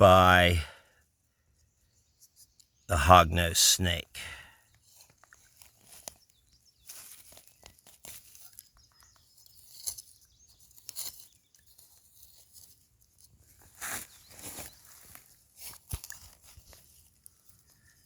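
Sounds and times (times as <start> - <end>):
hands scraping through soil: 13.6 - 17.7.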